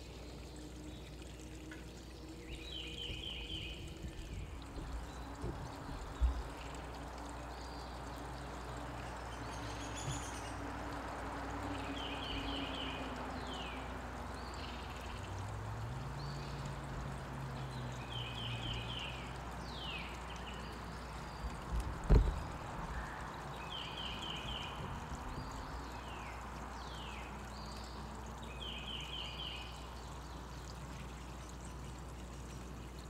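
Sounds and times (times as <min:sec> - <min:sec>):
steady outdoor hiss: 0:00.0 - 0:33.0
sharp thumps: 0:22.1 - 0:22.5.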